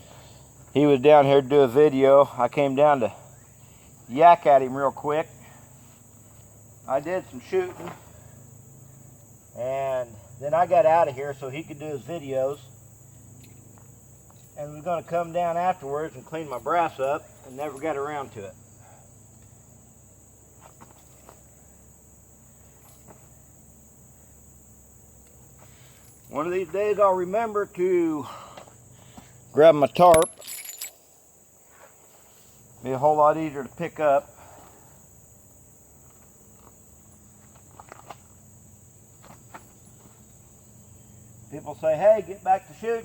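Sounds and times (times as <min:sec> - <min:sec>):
insect chirring: 0:00.0 - 0:31.8, 0:32.6 - 0:43.0.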